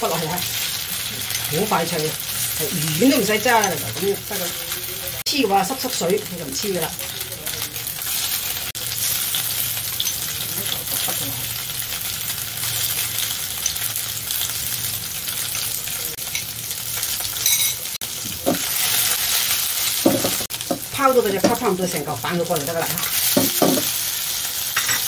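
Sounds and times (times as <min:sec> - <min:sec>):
fish paste sizzling in oil: 0:00.0 - 0:25.0.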